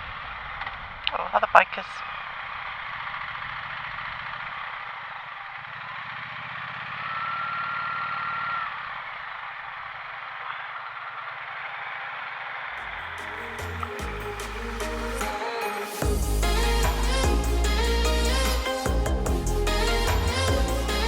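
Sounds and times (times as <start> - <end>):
motorcycle engine running: 2.1 - 10.6.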